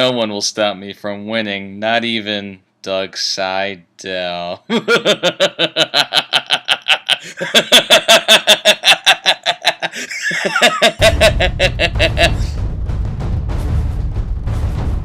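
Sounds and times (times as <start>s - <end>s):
man laughing rhythmically: 4.6s - 12.6s
low drum-heavy music: 10.5s - 15.0s.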